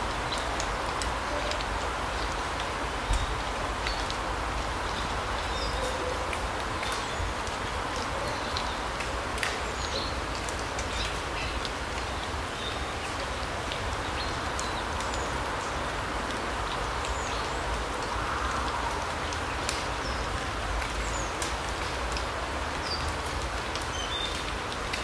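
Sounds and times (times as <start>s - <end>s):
light ticks: 0.3s - 4.2s, 5.3s - 12.8s, 16.3s - 25.0s.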